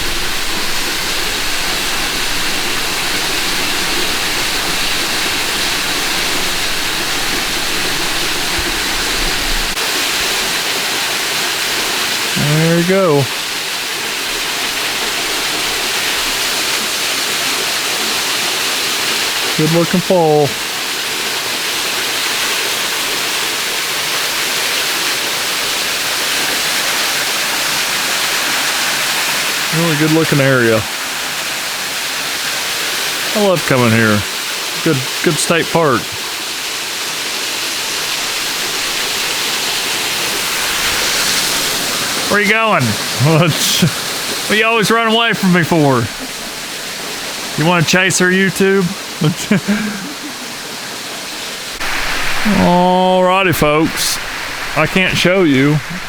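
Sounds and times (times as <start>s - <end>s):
waterfall splashing onto rock: 0.0s - 44.6s, 48.8s - 56.0s.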